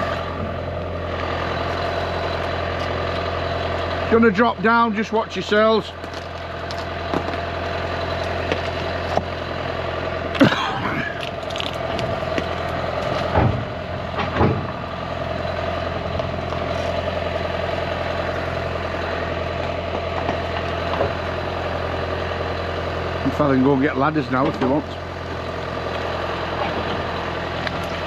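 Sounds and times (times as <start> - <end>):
heavy vehicle engine idling: 0.0 - 28.0
short knocks and clanks: 11.9 - 14.8.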